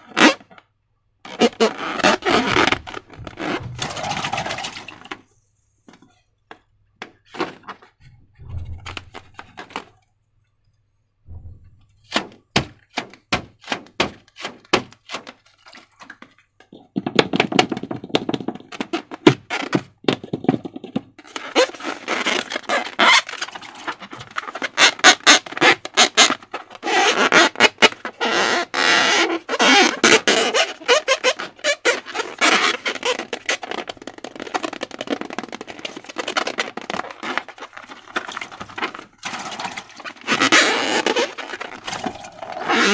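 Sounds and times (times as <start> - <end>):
low thumps: 2.0 - 4.8, 8.0 - 9.6, 11.2 - 12.6.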